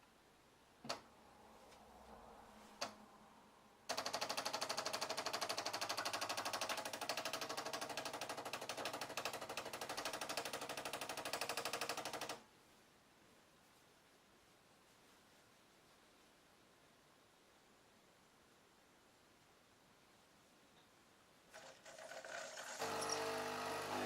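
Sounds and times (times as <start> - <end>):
coffee machine pump pulsing: 21.6 - 24.0.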